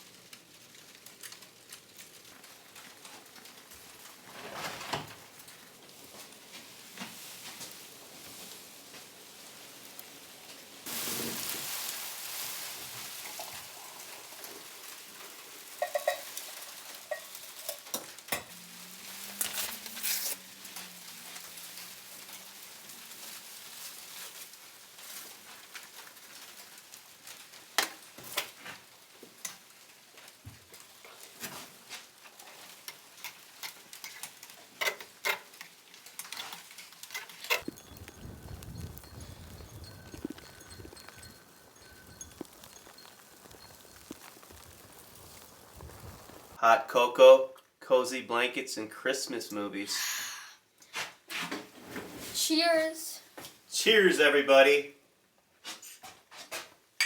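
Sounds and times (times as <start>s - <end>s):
steady hiss: 4.9s - 25.1s, 37.6s - 46.6s
spoon clinking in a mug: 15.8s - 16.3s.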